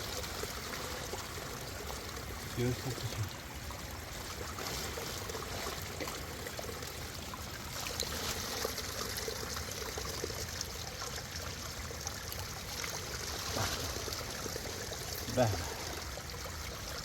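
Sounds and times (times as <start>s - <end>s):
river water rushing: 12.8s - 16.8s.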